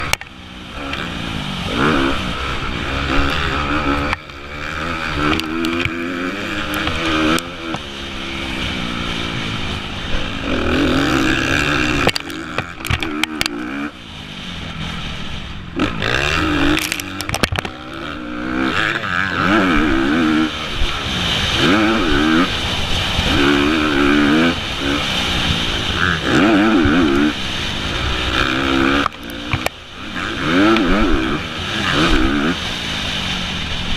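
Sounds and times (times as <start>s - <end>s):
motorcycle engine revving: 0.0s - 33.9s
wind noise: 18.8s - 33.9s.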